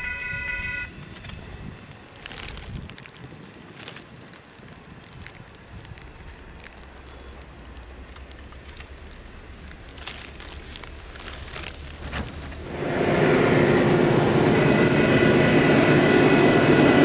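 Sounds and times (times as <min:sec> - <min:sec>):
wind-blown snow hitting microphone: 0:00.0 - 0:17.0
low steady rumble: 0:04.6 - 0:17.0.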